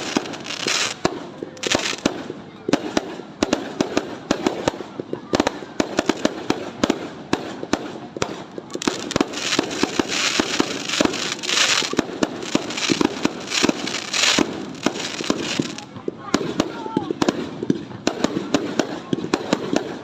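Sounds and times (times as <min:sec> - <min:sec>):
fireworks hissing: 0:00.0 - 0:02.2, 0:08.3 - 0:15.9
fireworks bangs: 0:00.0 - 0:20.0.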